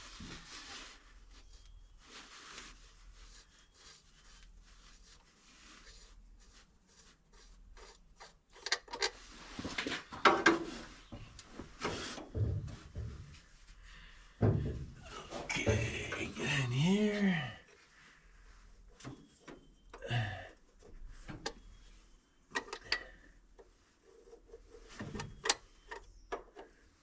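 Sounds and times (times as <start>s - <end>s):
quiet scraping and rubbing: 0.0s - 14.4s, 15.1s - 19.9s, 20.7s - 27.0s
tools knocking and clattering: 10.2s - 10.7s.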